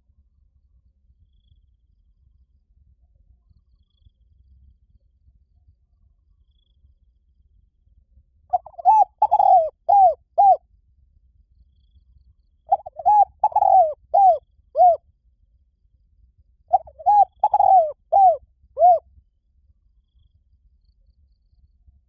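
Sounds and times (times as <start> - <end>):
dove cooing: 8.5 - 10.6, 12.7 - 15.0, 16.7 - 19.0.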